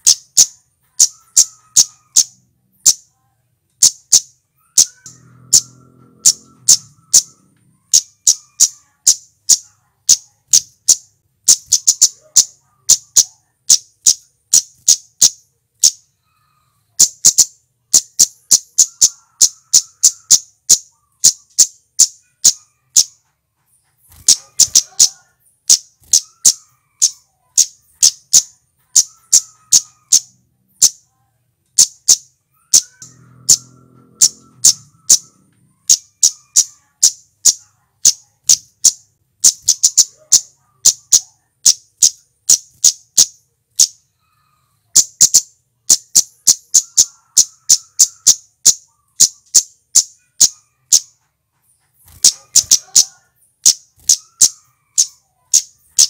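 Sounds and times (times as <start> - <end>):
bird calling high tsit notes: 3.8 - 23.3, 31.8 - 51.2.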